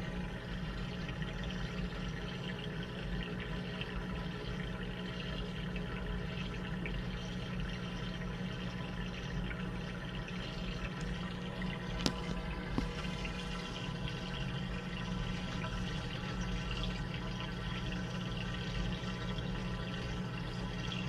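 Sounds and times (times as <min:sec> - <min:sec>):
washing machine running: 0:00.0 - 0:21.0.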